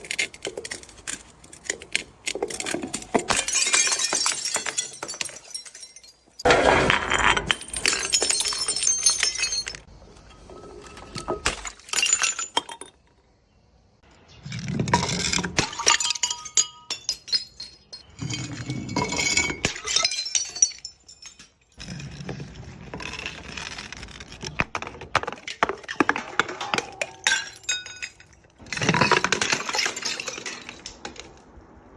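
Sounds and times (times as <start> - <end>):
glass shards clinking: 0.0 - 13.1, 15.0 - 21.8, 26.1 - 31.0
glass bottles breaking: 0.0 - 13.2, 14.8 - 22.2, 24.7 - 31.4.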